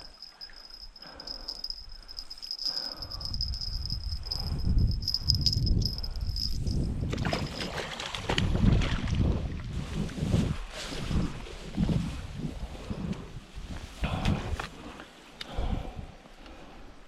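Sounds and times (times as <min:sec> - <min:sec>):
high-pitched insect drone: 0:00.0 - 0:06.9
wind rumble on microphone: 0:02.7 - 0:17.0.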